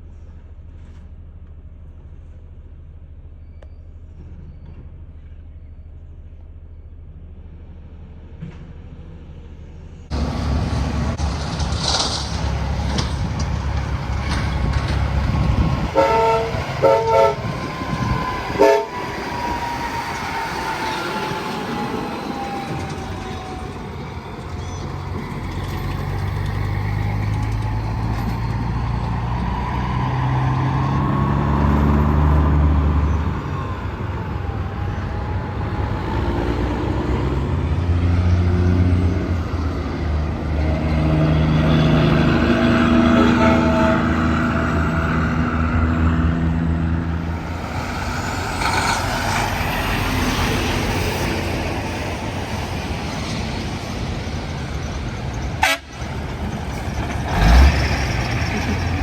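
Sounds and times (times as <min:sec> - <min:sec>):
diesel truck engine droning: 0:00.0 - 0:59.0
highway traffic passing: 0:04.0 - 0:59.0
truck air horn blasts: 0:15.8 - 0:19.3, 0:42.8 - 0:45.1, 0:55.6 - 0:56.1.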